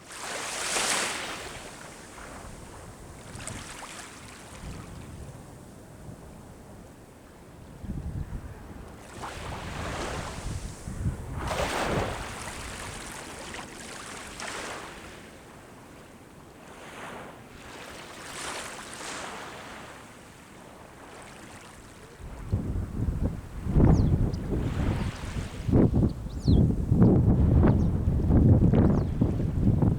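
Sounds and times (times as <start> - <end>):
sea waves breaking on shore: 0.0 - 5.3, 8.8 - 23.8, 24.5 - 25.8
wind buffeting microphone: 7.7 - 13.1, 22.2 - 29.9.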